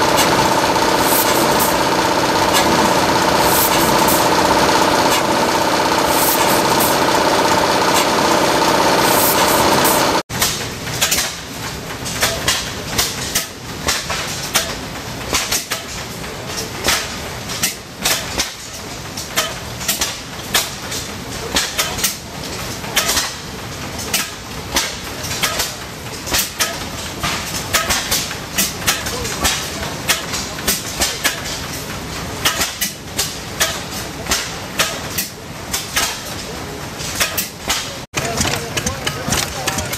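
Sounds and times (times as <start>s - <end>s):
engine running loudly: 0.0s - 10.2s.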